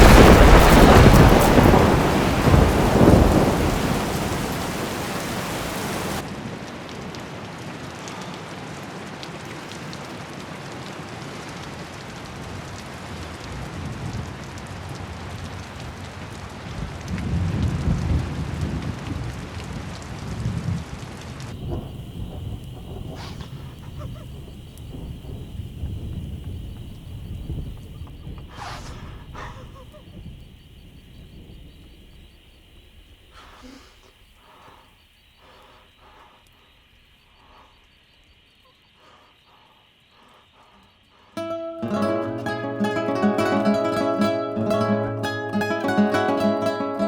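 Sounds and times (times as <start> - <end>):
loud thunderclap: 0.0 - 6.6, 12.5 - 33.6
low thunder rumbles: 0.0 - 7.2, 11.9 - 34.8
heavy rain: 0.0 - 38.3, 38.9 - 47.0.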